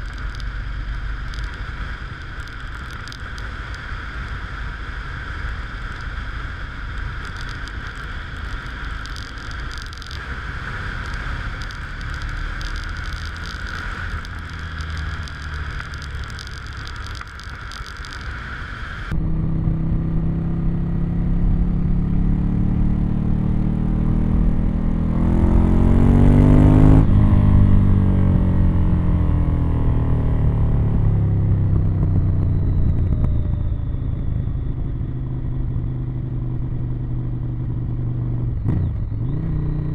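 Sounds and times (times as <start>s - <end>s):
steady whine: 0.0s - 20.9s
motorcycle engine revving: 0.0s - 39.9s.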